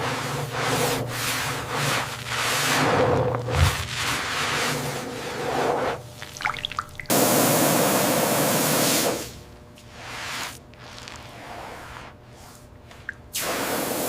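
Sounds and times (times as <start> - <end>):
water dripping: 6.2 - 7.1.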